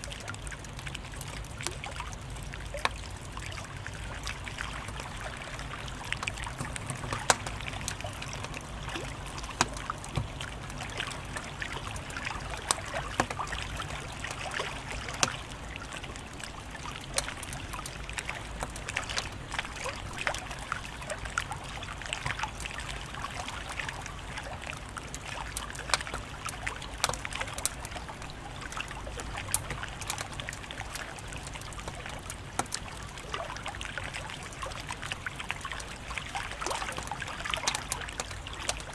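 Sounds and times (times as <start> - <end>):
low rumble of burning: 0.0 - 38.9
wood fire crackling: 0.0 - 38.9
fire popping: 0.4 - 15.4.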